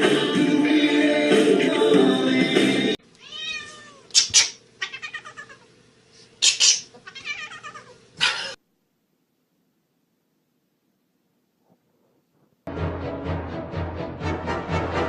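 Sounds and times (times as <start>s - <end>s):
cat yowling: 3.2s - 5.7s, 7.0s - 8.5s.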